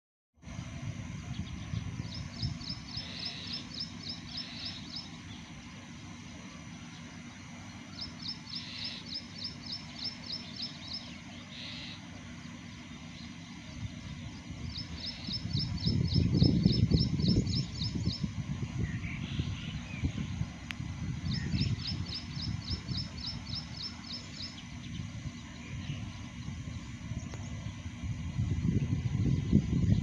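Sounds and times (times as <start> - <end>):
bird calling high repeated notes: 2.2 - 5.3, 7.9 - 12.1
low rumble: 12.3 - 30.0.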